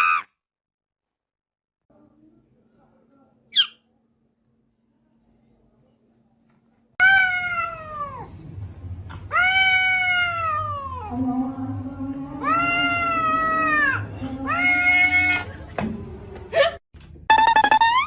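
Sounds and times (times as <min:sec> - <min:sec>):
cat meowing: 0:09.3 - 0:11.1.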